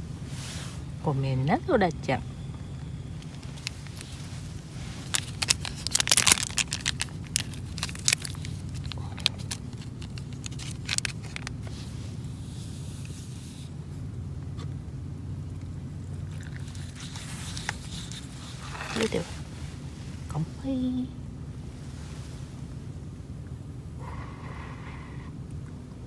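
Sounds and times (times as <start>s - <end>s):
steady low hum: 0.0s - 26.0s
sharp clicks and crackles: 2.5s - 11.8s
crinkling and tearing: 3.2s - 12.0s, 16.3s - 19.9s.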